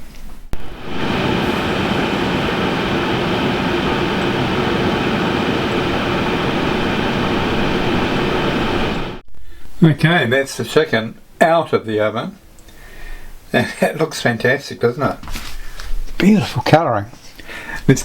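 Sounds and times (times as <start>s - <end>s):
air fryer fan whirring: 0.6s - 9.2s.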